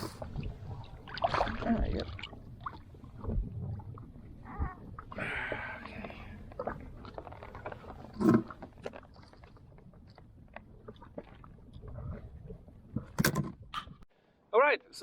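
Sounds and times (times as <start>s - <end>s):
fishing gear knocking and rustling: 6.5s - 14.1s.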